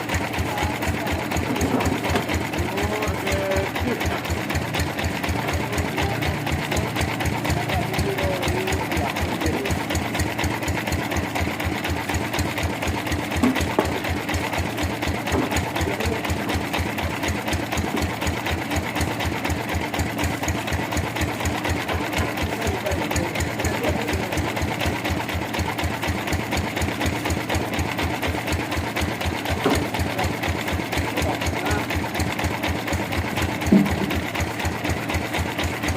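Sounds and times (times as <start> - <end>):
sawmill machinery chugging: 0.0 - 35.9
short sharp knocks: 33.7 - 34.3.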